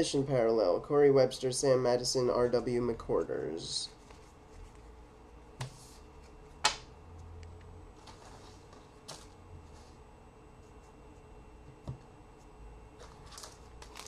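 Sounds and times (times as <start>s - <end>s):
soft card rustling: 3.6s - 5.0s, 13.0s - 14.0s.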